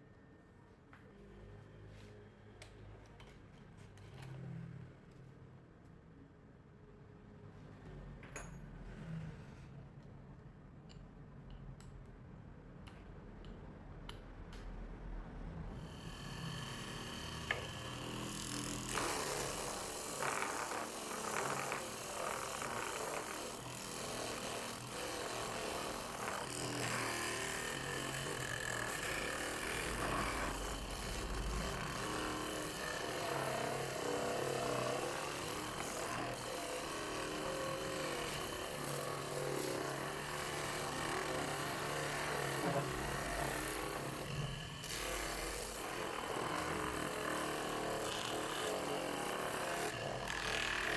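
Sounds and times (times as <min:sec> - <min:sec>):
drum sander grinding wood: 0:15.9 - 0:50.9.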